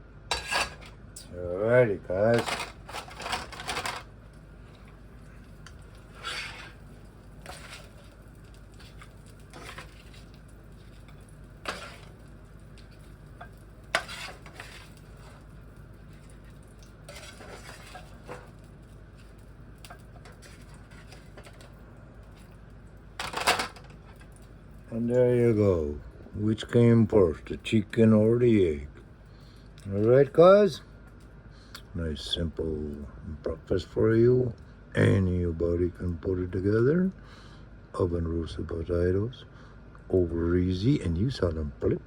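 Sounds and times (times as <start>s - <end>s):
faint steady background noise: 0.0s - 42.0s
utensils clinking against pans: 0.3s - 0.9s.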